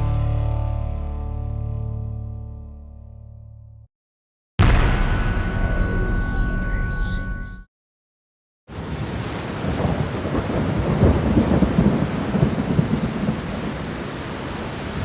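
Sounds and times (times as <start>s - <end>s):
thunder rumbling: 4.6s - 7.4s, 8.8s - 15.0s
steady rain: 8.7s - 15.0s.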